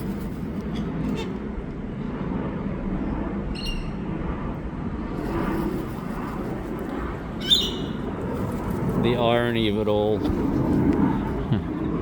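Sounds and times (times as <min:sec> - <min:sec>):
low outdoor rumble: 0:00.0 - 0:12.0
short high bird chirp: 0:03.6 - 0:04.0, 0:07.4 - 0:08.0.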